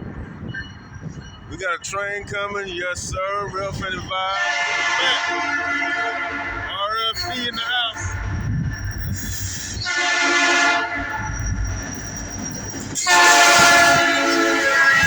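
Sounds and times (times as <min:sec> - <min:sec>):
low rumble of train: 0:00.0 - 0:15.0
train air horn blasts: 0:04.3 - 0:06.8, 0:09.8 - 0:11.3, 0:13.0 - 0:15.0.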